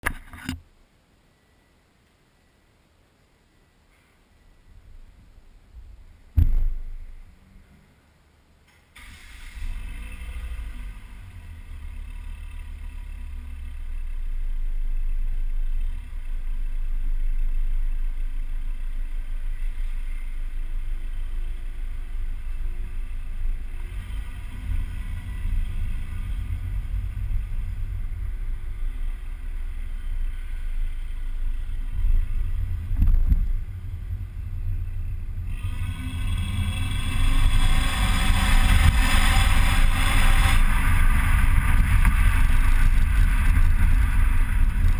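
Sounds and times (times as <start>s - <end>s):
car exhaust rumble: 4.5s - 44.9s
loud rushing noise: 23.7s - 44.9s.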